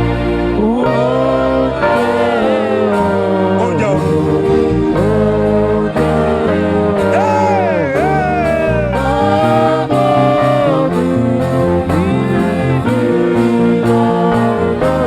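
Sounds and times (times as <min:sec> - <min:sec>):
solo voice singing gospel: 0:00.0 - 0:15.0
bass line and steady beat: 0:07.0 - 0:15.0.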